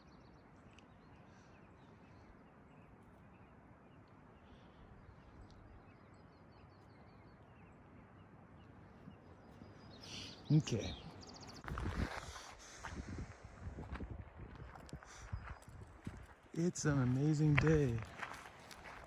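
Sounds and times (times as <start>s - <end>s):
faint outdoor ambience: 0.0s - 19.0s
small bird high chirps: 5.0s - 11.7s.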